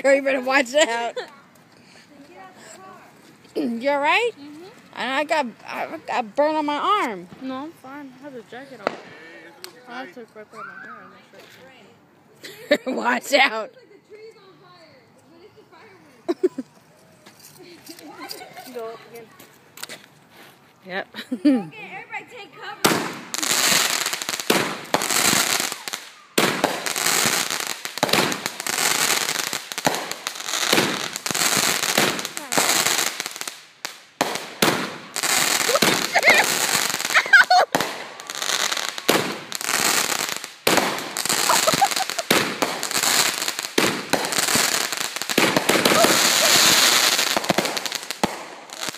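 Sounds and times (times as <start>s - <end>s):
fireworks and firecrackers bangs: 8.7s - 9.8s, 22.8s - 48.9s.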